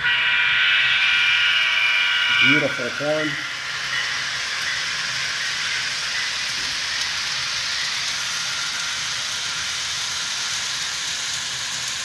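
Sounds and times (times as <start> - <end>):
model train rolling on track: 0.0 - 12.0.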